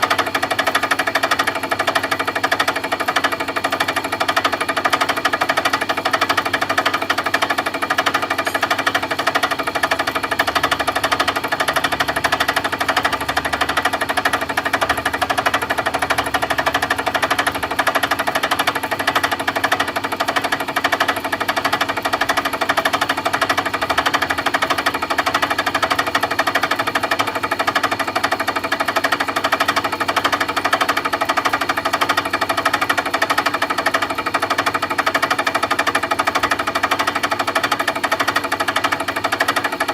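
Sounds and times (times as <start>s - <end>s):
machine hum: 4.5s - 19.2s.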